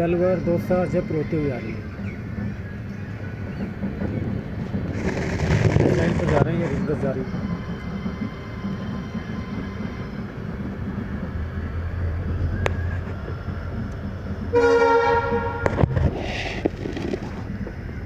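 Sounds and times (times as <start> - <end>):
train coach rumbling on track: 0.0 - 18.0
locomotive horn blast: 14.5 - 16.1.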